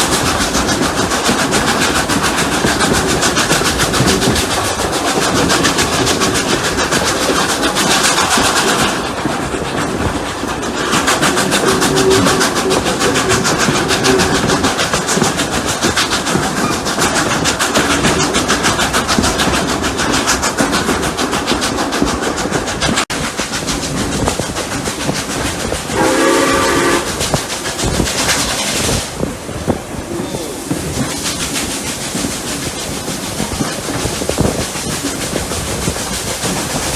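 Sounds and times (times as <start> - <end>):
steam locomotive chuffing: 0.0 - 36.9
steam whistle: 25.9 - 27.2.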